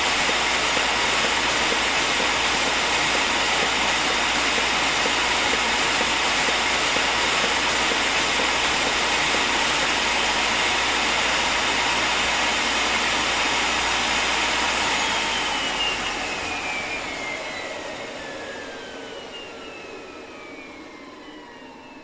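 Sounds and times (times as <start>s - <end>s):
folding machine whirring: 0.0s - 12.6s.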